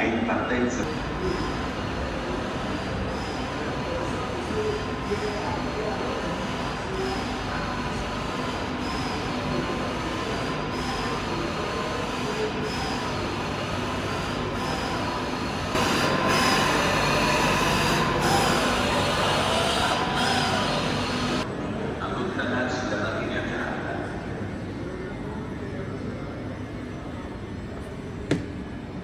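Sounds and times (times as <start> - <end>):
train wheels squealing on rails: 0.9 - 21.4.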